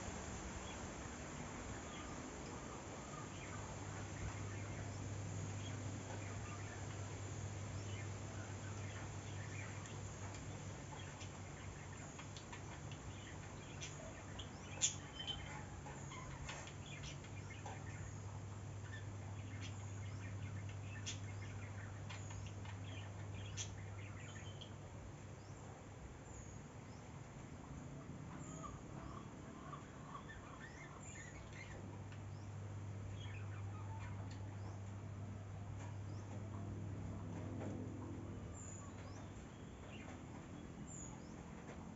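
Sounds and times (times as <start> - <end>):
low steady hum: 0.0 - 41.9
small birds chirping: 0.0 - 41.9.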